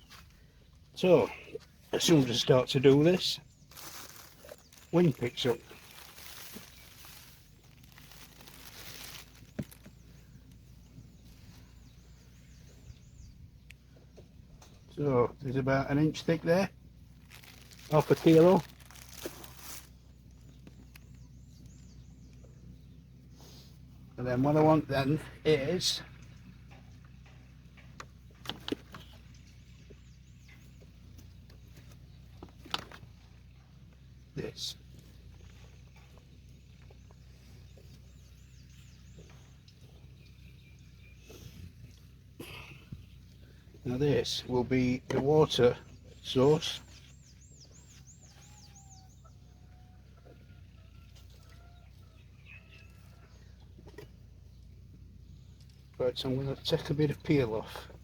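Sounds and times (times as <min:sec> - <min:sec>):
small bird chirping: 0:01.4 - 0:15.0, 0:45.9 - 0:51.0
distant chickens clucking: 0:48.2 - 0:54.4.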